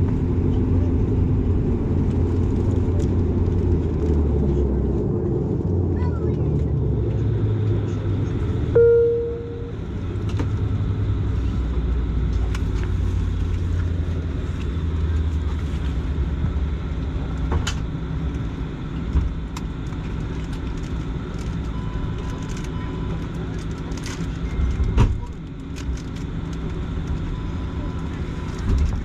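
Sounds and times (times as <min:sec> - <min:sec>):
turboprop engines droning: 0:00.0 - 0:29.0
chime tone: 0:08.8 - 0:09.7.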